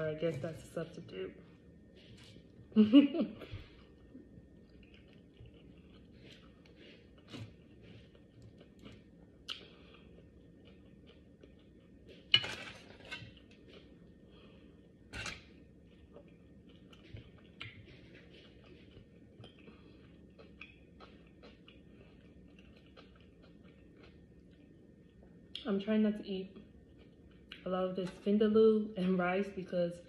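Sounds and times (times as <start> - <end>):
chewing food: 3.5 - 25.7, 26.6 - 28.2.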